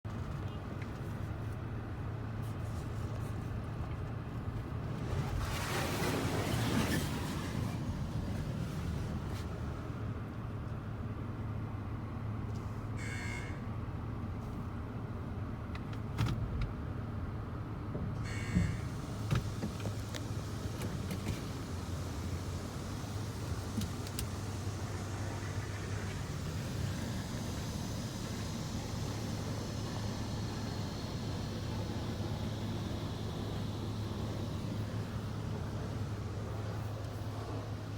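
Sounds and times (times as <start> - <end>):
rushing hiss of car wash: 4.9 - 10.1, 18.2 - 37.9
vehicle engine idling: 18.3 - 37.9.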